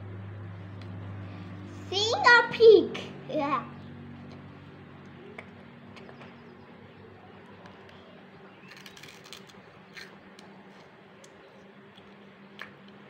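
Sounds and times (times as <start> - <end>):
low steady hum: 0.0 - 13.0
child crunching crisp snack: 8.6 - 10.9.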